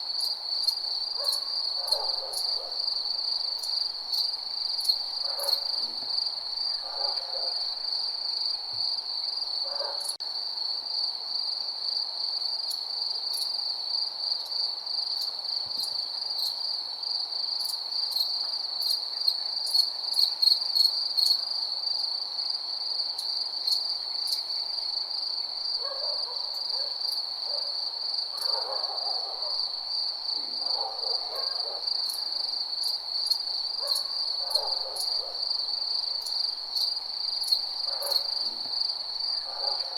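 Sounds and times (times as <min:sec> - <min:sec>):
crickets chirring: 0:00.0 - 0:39.9
night animal calls: 0:01.2 - 0:02.9, 0:05.2 - 0:06.1, 0:30.3 - 0:32.2, 0:33.8 - 0:35.4, 0:37.8 - 0:38.7.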